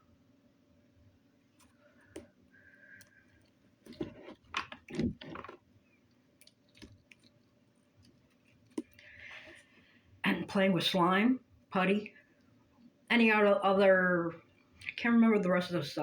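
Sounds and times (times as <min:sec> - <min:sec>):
slime squelching by hand: 0:02.0 - 0:09.6.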